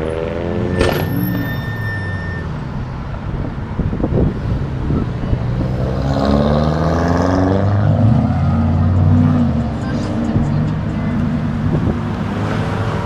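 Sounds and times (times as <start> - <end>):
car engine revving: 4.1 - 13.0.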